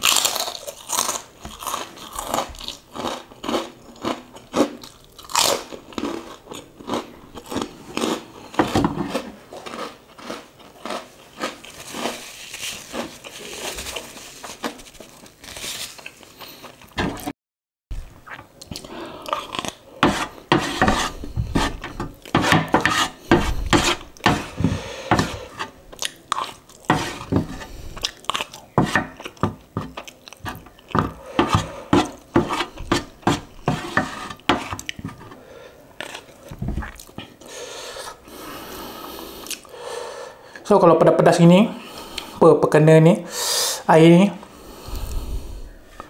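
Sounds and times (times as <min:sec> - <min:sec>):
chewing and biting noodles: 0:00.0 - 0:14.0, 0:23.9 - 0:33.6
utensils scraping a metal tray: 0:20.0 - 0:25.8, 0:26.9 - 0:27.8, 0:29.8 - 0:35.4.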